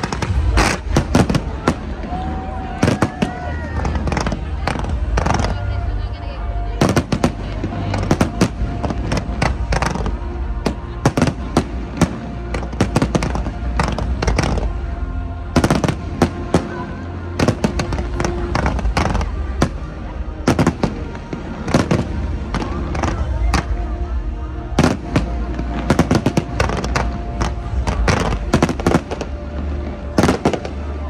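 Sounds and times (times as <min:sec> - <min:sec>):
fireworks bursting and crackling: 0:00.0 - 0:31.0.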